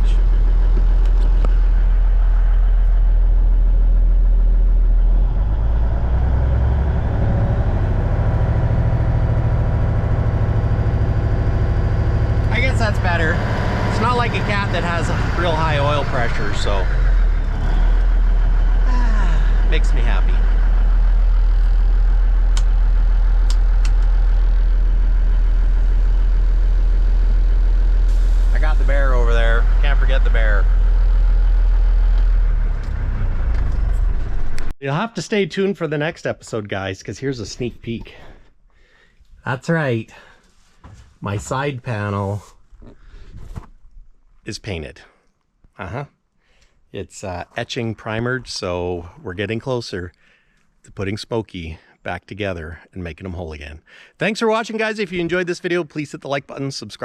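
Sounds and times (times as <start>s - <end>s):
diesel truck engine idling: 0.0s - 34.7s.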